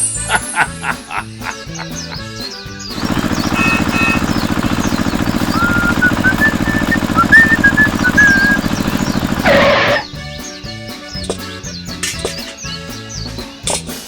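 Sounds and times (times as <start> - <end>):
small motor rattling: 3.0 - 10.1
person whistling a tune: 5.5 - 8.8.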